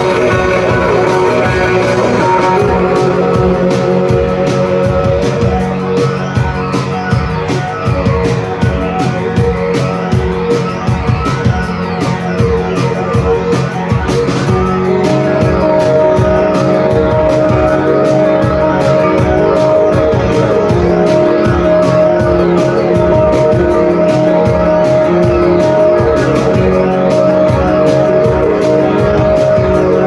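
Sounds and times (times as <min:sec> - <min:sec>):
drums with fast beat: 0:00.0 - 0:30.0
electric guitars: 0:00.0 - 0:30.0.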